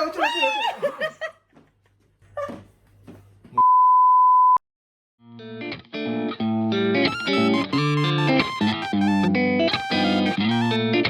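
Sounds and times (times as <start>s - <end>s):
steady censor bleep: 3.6s - 4.6s
plucked electric guitar music: 5.2s - 11.0s.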